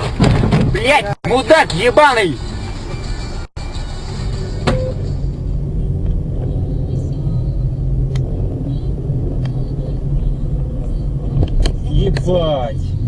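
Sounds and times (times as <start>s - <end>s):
car engine rumbling: 0.0s - 13.0s
road noise: 0.0s - 13.0s.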